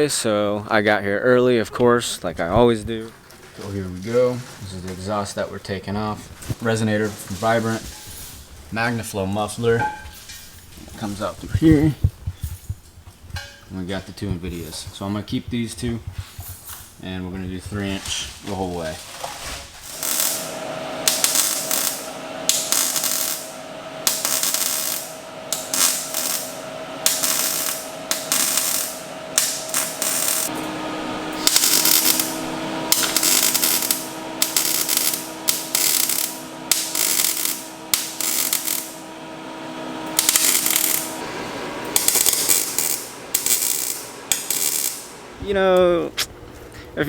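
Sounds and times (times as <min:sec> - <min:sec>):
steady hum: 0:00.0 - 0:47.0
ratchet wrench clicking: 0:31.4 - 0:38.9, 0:40.2 - 0:41.1, 0:42.0 - 0:45.0.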